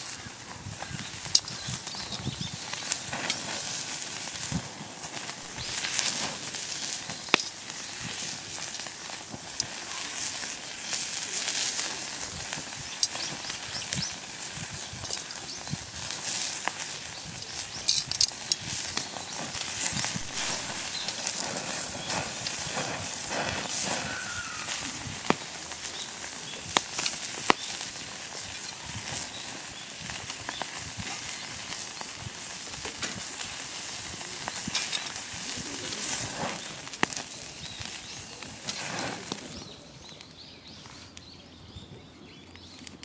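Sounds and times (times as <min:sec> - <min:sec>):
steak sizzling on iron plate: 0:00.0 - 0:39.6
sharp pops and crackles: 0:00.0 - 0:43.0.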